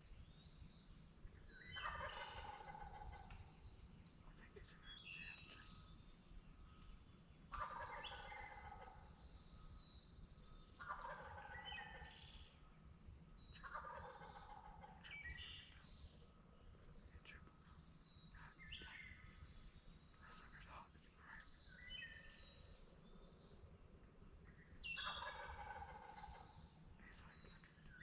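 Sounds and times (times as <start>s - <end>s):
songbird chirping: 0.0s - 28.0s
turkey gobbling: 1.8s - 3.0s, 7.5s - 8.6s, 10.8s - 12.1s, 13.6s - 14.9s, 25.0s - 26.4s.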